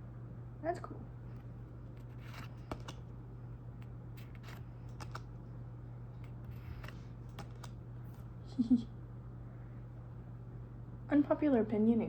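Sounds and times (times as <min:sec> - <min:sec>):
steady low hum: 0:00.0 - 0:12.0
trading cards rustling and snapping: 0:01.3 - 0:05.5, 0:06.2 - 0:08.3.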